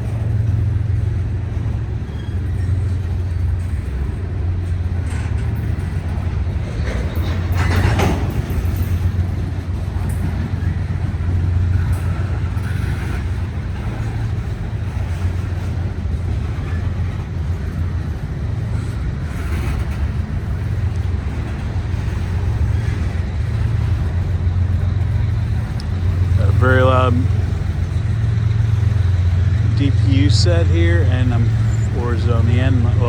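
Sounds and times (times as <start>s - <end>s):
freight train wheels rumbling on rail: 0.0s - 33.0s.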